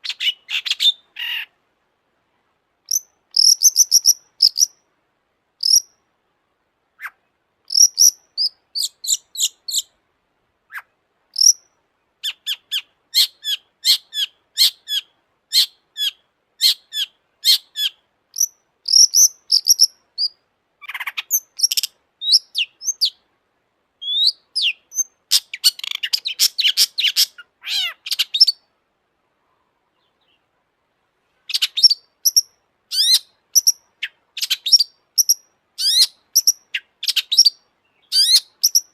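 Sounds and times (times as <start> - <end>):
bird singing sharp chirps and trills: 2.9 - 4.8, 5.6 - 6.0, 7.0 - 9.9, 10.7 - 23.2, 24.0 - 28.7, 31.5 - 38.9.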